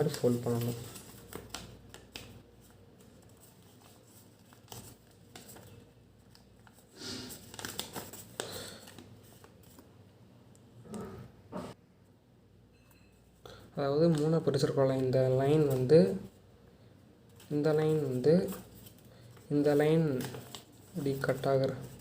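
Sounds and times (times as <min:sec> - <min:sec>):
paper being folded and creased: 0:00.0 - 0:09.8, 0:17.3 - 0:22.0.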